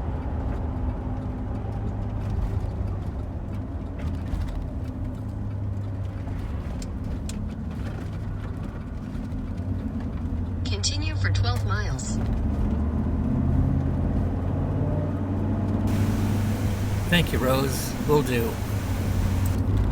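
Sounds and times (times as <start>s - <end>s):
road and engine hum in a car: 0.0s - 19.9s
faint ticks and rattles: 15.9s - 19.6s.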